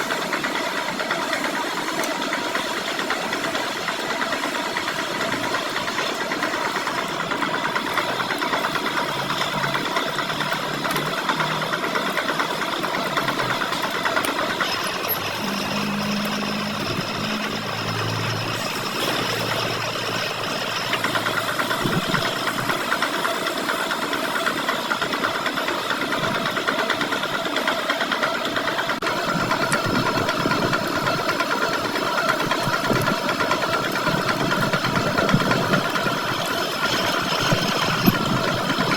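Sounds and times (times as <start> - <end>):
metal lathe cutting steel: 0.0 - 38.9.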